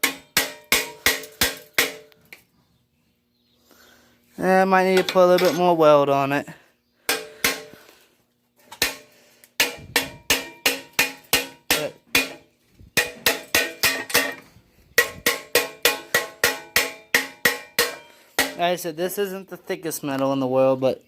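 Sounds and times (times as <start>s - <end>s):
hammer striking metal: 0.0s - 2.2s, 7.1s - 7.8s, 8.7s - 14.4s, 15.0s - 18.6s.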